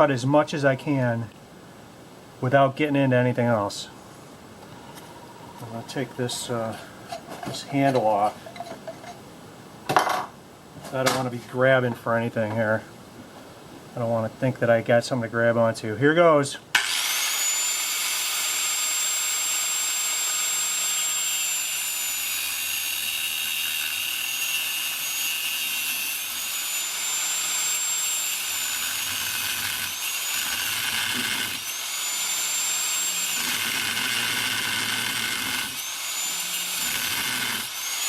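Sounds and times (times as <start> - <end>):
electric grinder cutting metal: 16.8 - 38.0.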